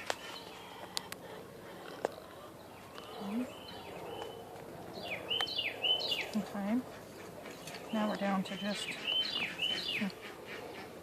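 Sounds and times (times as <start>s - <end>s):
bird chirping: 2.3s - 10.9s.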